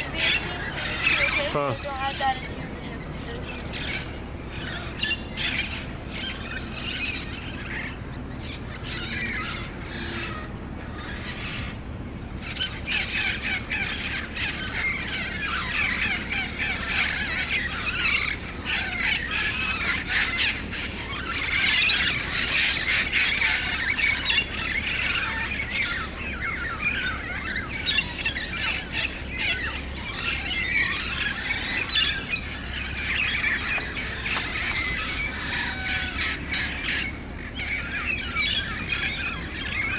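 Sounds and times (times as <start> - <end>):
parrots squawking and screeching: 0.0 - 39.9.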